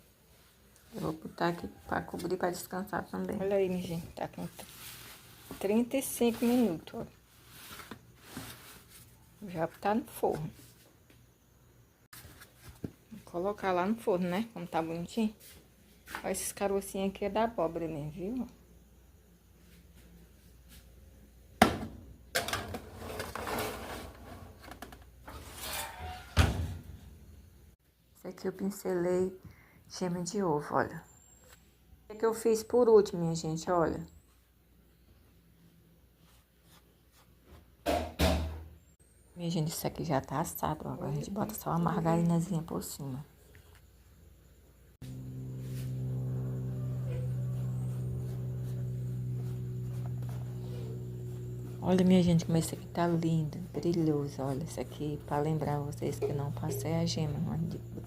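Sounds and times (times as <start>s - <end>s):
kitchenware clattering and scraping: 22.4s - 24.7s, 25.3s - 26.6s
low electrical hum: 43.5s - 58.0s.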